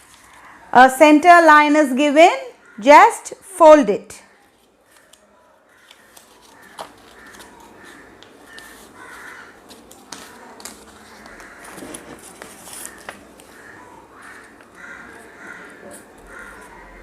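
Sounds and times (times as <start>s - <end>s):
paper being folded: 0.0s - 0.6s, 4.4s - 17.0s
crows cawing: 2.6s - 2.8s, 4.8s - 17.0s.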